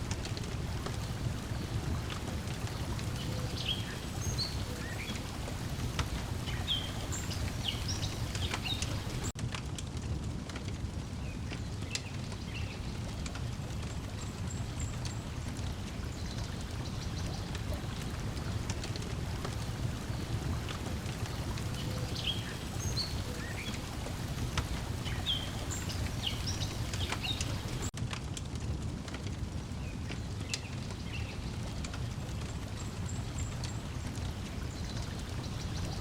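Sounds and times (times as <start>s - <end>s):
lake water lapping: 0.0s - 9.4s, 14.1s - 27.9s
wood fire crackling and popping: 5.1s - 16.1s, 25.7s - 31.0s.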